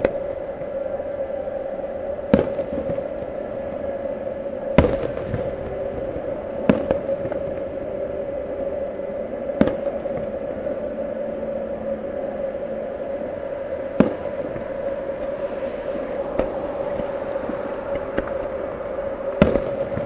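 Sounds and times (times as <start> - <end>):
steady hum: 0.0 - 20.0
firework shells booming: 2.3 - 3.0, 4.8 - 5.8, 6.6 - 7.4, 14.0 - 14.5, 19.4 - 20.0.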